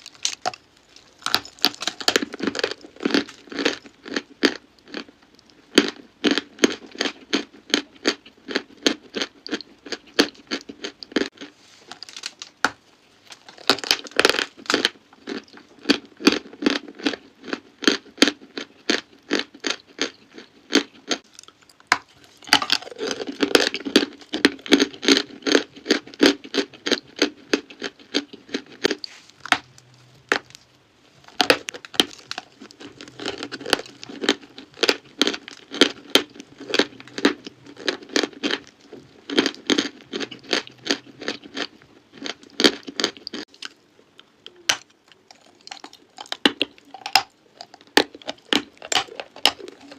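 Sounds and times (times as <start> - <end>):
chalk crunching: 28.8 - 36.0.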